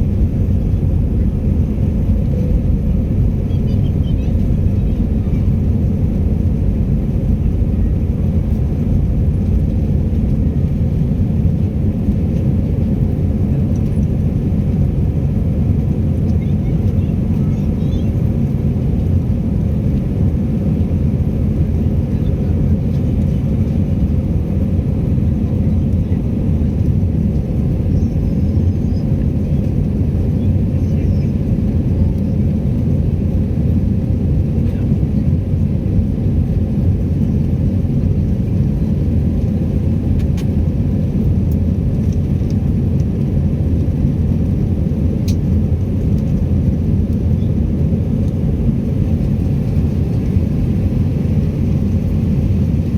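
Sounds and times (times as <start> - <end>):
airliner cabin engine rumble: 0.0 - 52.9.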